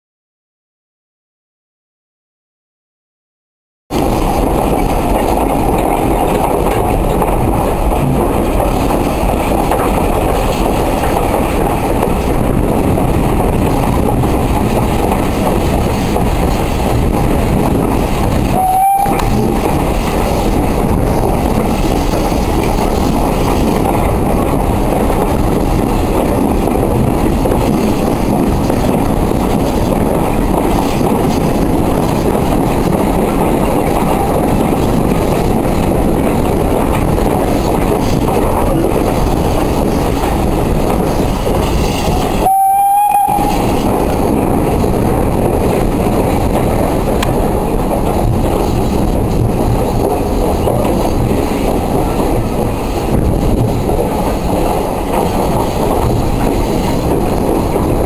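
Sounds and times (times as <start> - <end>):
train wheels rumbling on track: 3.9 - 58.0
brief tone: 18.6 - 19.4, 42.4 - 43.6.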